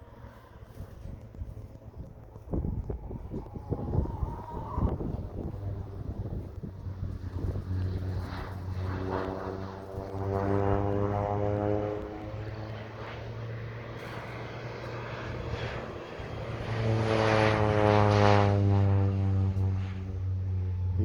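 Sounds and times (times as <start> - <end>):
propeller airplane engine drone: 0.0 - 21.0.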